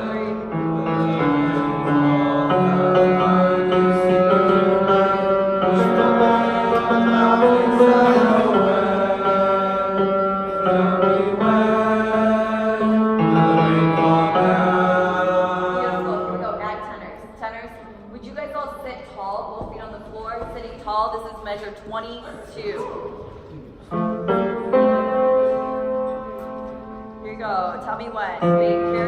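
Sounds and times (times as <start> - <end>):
choir singing low notes: 0.0 - 16.7.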